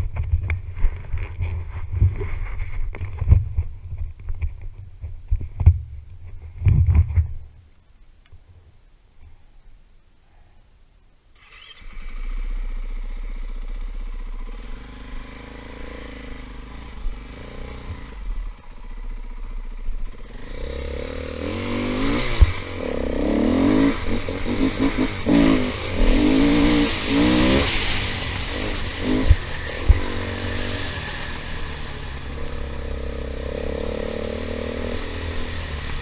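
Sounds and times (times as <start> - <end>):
dirt bike engine: 11.4 - 36.0.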